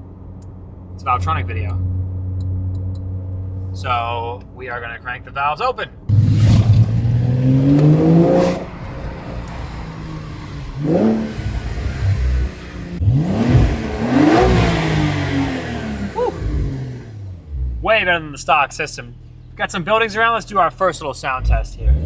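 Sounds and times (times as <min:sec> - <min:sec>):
car engine accelerating hard: 0:06.1 - 0:18.3, 0:21.2 - 0:22.0.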